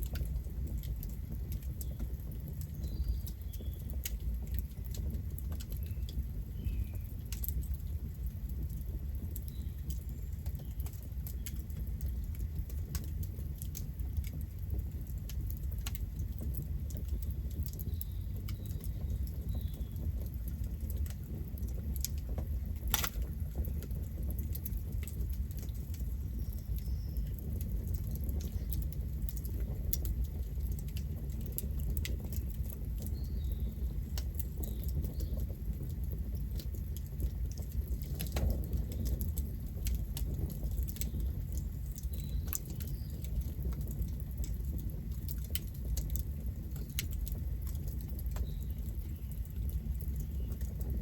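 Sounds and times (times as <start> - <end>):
campfire crackling and popping: 0.0 - 51.0
low rumble of flames: 0.0 - 51.0.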